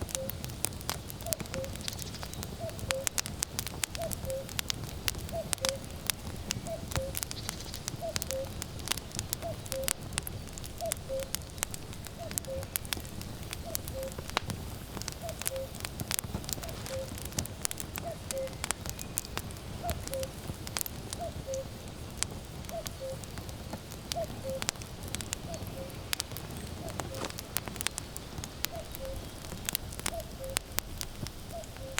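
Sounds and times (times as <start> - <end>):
cuckoo calling: 0.0 - 0.6, 1.2 - 3.3, 3.9 - 4.6, 5.2 - 10.1, 10.8 - 11.5, 12.1 - 13.0, 13.6 - 14.4, 15.1 - 17.3, 18.0 - 20.4, 21.1 - 21.8, 22.7 - 23.3, 24.1 - 24.8, 25.4 - 30.8, 31.5 - 31.9
firewood crackling and popping: 0.0 - 31.9.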